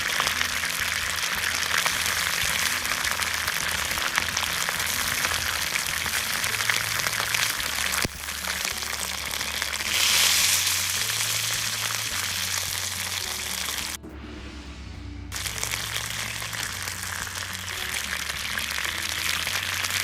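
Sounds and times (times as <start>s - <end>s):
campfire crackling and sizzling: 0.0s - 14.0s, 15.3s - 20.0s
soft background music: 0.0s - 20.0s.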